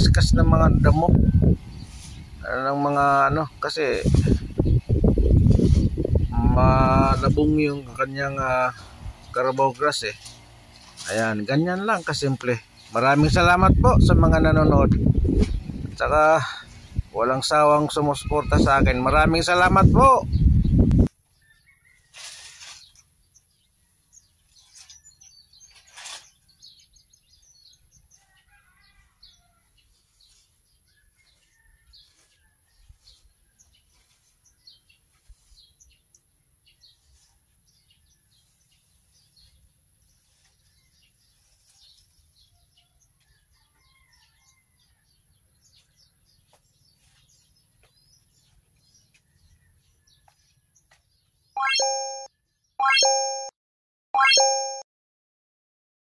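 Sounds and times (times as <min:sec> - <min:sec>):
small birds chirping: 0:00.0 - 0:53.4
electronic chime: 0:51.6 - 0:53.5, 0:54.2 - 0:54.8.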